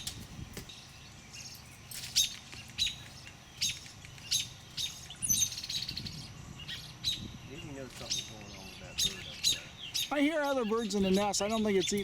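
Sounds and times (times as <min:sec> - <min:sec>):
bird giving sharp calls: 0:02.0 - 0:12.0.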